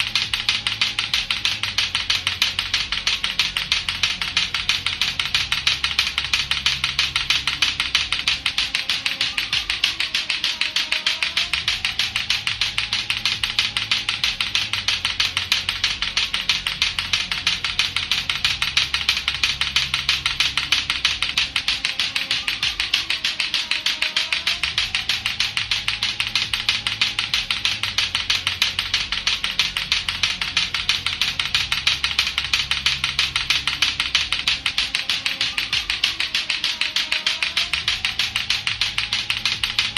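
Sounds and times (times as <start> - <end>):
plastic balls clacking together: 0.0 - 39.9.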